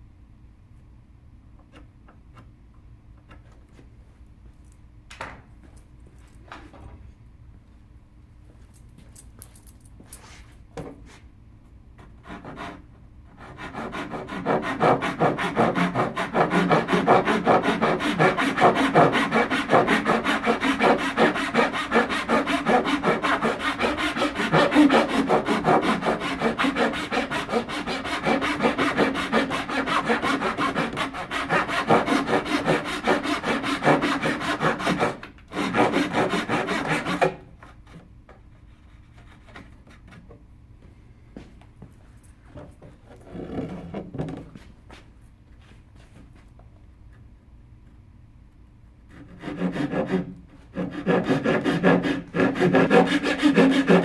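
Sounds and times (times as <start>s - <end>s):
hand rasping wood: 13.6s - 37.3s, 49.4s - 54.0s.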